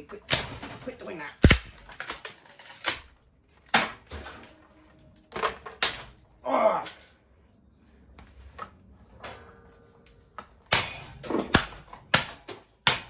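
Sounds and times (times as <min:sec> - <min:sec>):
hard knocks and cracks: 0:00.3 - 0:04.5, 0:05.3 - 0:06.3, 0:10.4 - 0:13.0.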